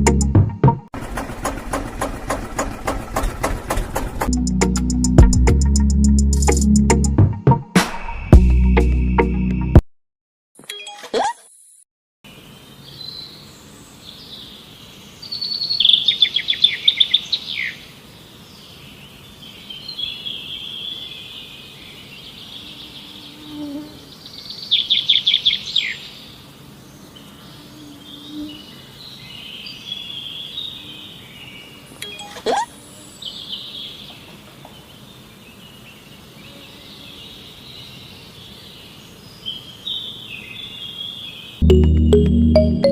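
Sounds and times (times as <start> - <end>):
birds chirping: 12.3 - 23.4, 24.1 - 42.9.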